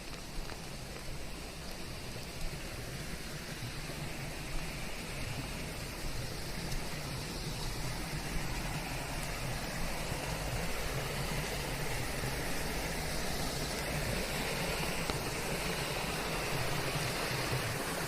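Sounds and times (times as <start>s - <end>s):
steady rain: 0.0s - 18.0s
white noise hiss: 0.0s - 18.0s.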